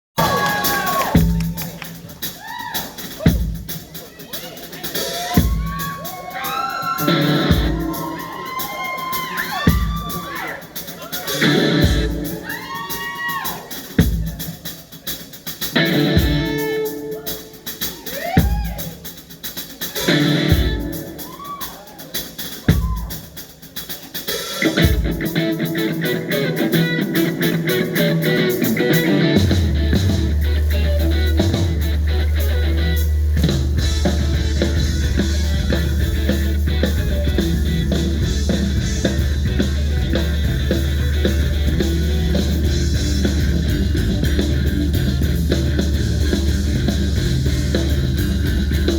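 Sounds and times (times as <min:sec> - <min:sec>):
live rock band playing: 0:00.2 - 0:48.9
heavy bass: 0:05.2 - 0:08.4, 0:11.3 - 0:12.5, 0:26.2 - 0:48.9.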